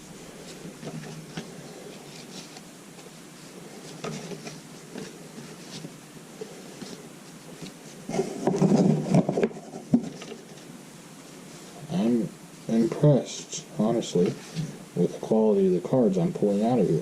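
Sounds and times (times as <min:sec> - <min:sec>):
rustling and knocking: 0:00.0 - 0:10.8, 0:14.1 - 0:14.9.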